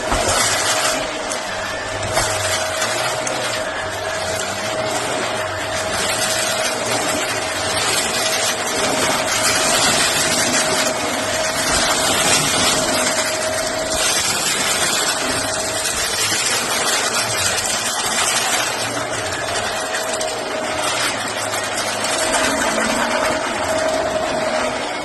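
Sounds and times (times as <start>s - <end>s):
vacuum cleaner running: 0.0s - 25.0s.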